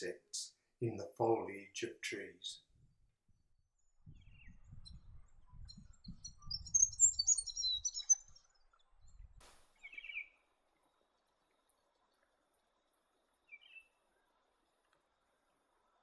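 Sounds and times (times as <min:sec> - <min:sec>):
high bird chirps: 0:04.1 - 0:10.4, 0:13.5 - 0:13.9
low bird call: 0:09.8 - 0:10.4.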